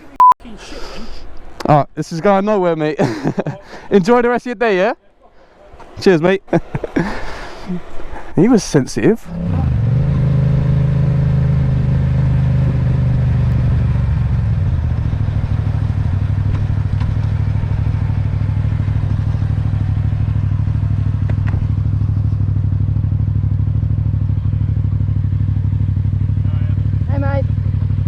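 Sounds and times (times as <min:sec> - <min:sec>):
motorcycle engine idling: 0:12.6 - 0:28.0.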